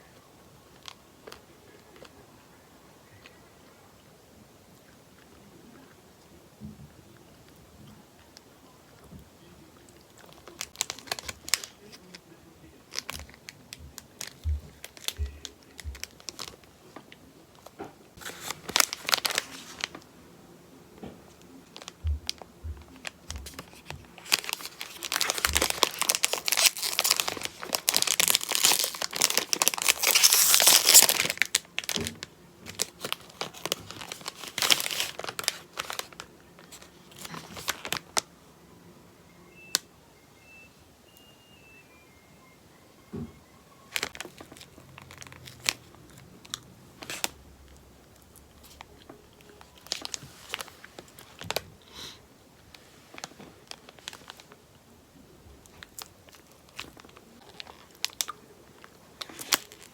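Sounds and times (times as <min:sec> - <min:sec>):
wrapper crinkling and tearing: 0:10.2 - 0:12.2, 0:12.8 - 0:16.7, 0:17.6 - 0:20.1, 0:21.7 - 0:38.2, 0:43.9 - 0:47.4, 0:48.6 - 0:52.1, 0:53.1 - 0:54.6, 0:55.6 - 0:59.9.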